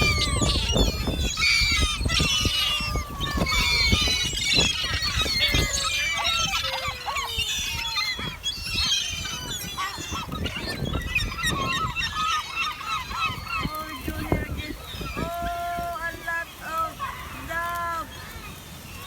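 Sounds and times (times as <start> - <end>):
gulls squawking: 0.0 - 19.0.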